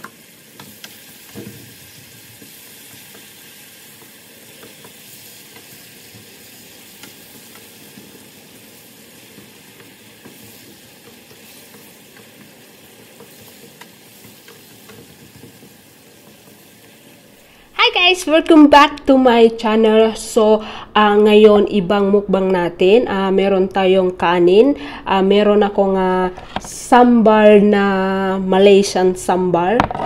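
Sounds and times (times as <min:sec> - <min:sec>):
sauce sizzling in oil: 0:00.0 - 0:17.8.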